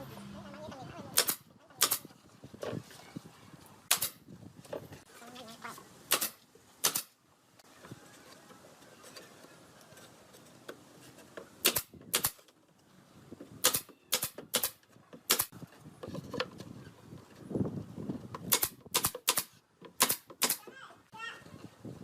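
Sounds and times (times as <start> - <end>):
nails hammered into wood: 1.2 - 2.0, 3.9 - 4.2, 6.1 - 7.1, 11.6 - 12.4, 13.6 - 15.5, 18.5 - 20.7.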